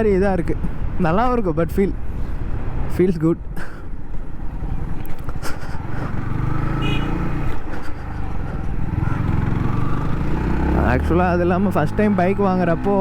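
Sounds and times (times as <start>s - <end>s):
motorcycle engine running: 5.8s - 12.2s.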